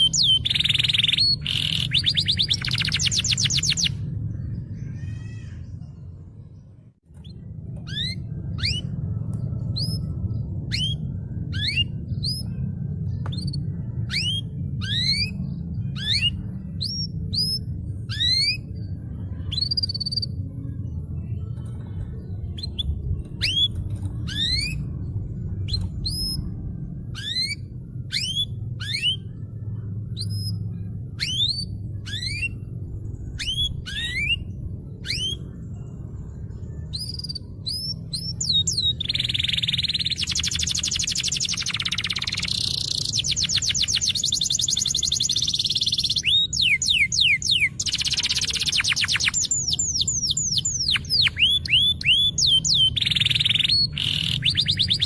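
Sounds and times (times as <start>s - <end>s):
canary whistled calls: 0.0s - 4.0s, 27.2s - 29.3s, 31.2s - 32.6s, 33.4s - 35.5s, 37.0s - 55.0s
low background rumble: 0.0s - 55.0s.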